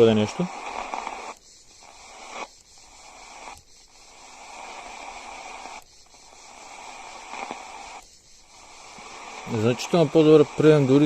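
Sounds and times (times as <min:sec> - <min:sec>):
faint radio broadcast: 0:00.0 - 0:01.3, 0:08.9 - 0:11.0
radio static hiss: 0:00.0 - 0:11.0.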